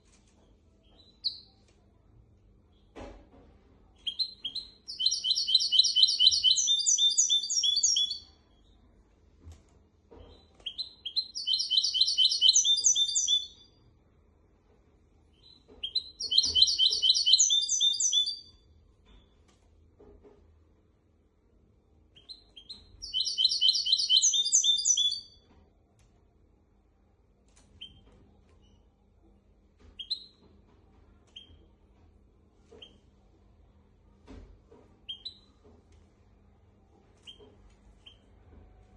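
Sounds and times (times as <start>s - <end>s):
finch singing high trills: 4.1s - 8.3s, 10.7s - 13.6s, 16.0s - 18.4s, 23.0s - 25.3s.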